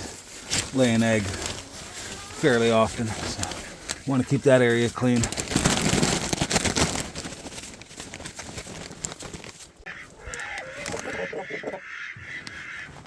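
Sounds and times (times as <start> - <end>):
poultry calling: 9.8 - 13.0.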